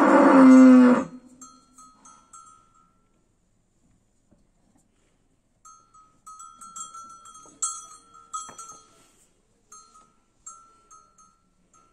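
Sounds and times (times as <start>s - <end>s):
cow bell clanking: 1.0s - 3.2s, 5.6s - 11.9s.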